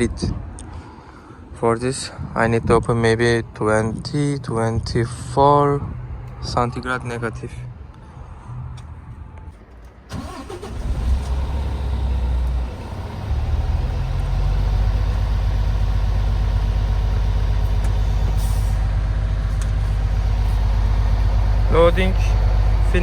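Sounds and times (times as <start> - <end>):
diesel engine starting and idling: 9.5 - 23.0.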